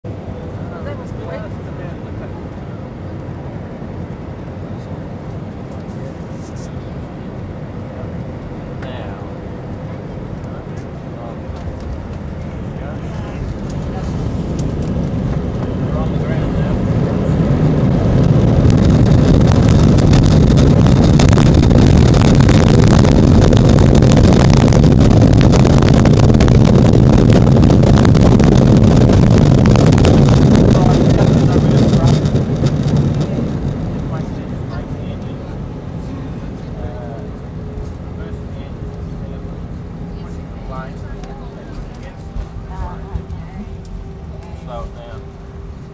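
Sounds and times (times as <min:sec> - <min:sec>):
airliner cabin roar: 0:00.0 - 0:45.9
jet engines and rushing air: 0:00.0 - 0:45.9.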